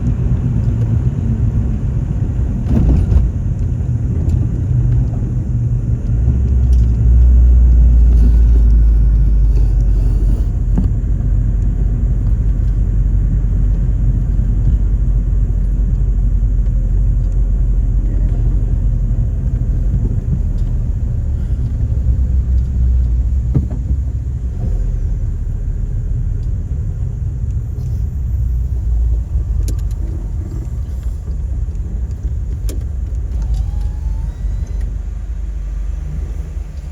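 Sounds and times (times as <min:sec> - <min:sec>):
car engine rumble: 0:00.0 - 0:36.9
road noise: 0:00.0 - 0:36.9.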